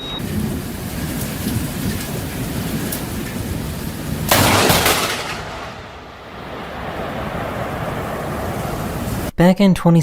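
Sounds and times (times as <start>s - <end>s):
steady rushing noise: 0.2s - 9.3s
sudden loud crash: 4.3s - 8.1s.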